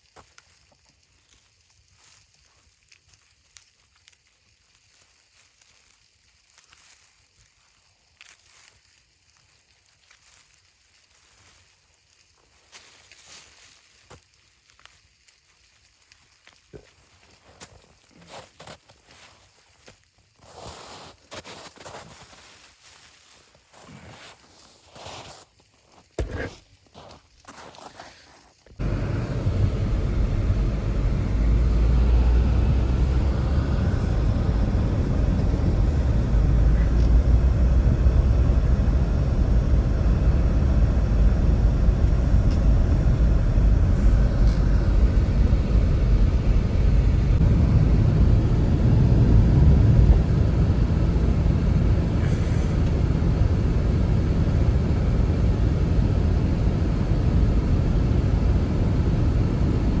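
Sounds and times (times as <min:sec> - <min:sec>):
strong wind rumbling: 0:28.8 - 1:00.0.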